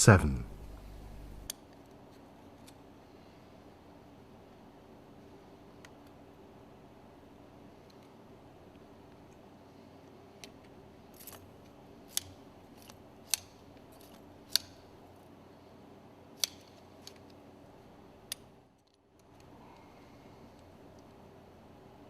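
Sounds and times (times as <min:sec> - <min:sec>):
pliers clicking and snipping wire: 0:12.1 - 0:14.8, 0:16.4 - 0:17.4.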